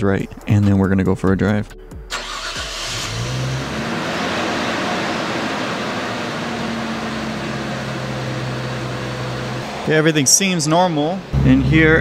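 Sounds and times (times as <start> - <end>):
car engine idling: 2.1 - 10.2.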